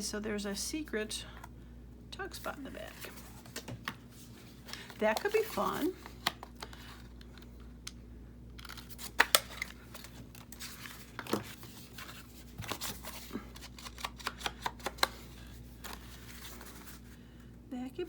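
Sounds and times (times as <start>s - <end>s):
paper rustling: 8.6s - 17.1s.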